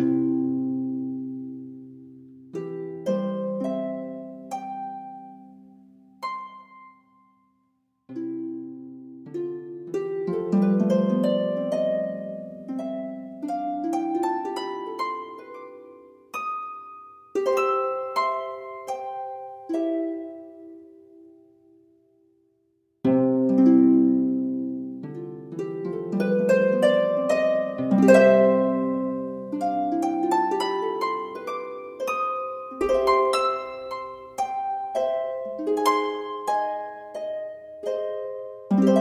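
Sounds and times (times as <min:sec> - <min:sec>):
plucked string instrumental music: 0:08.1 - 0:21.5, 0:23.0 - 0:39.0.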